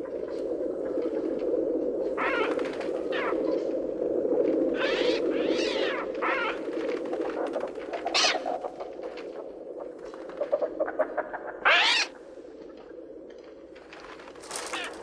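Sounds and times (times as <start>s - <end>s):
patter of clicks: 12.5s - 15.0s.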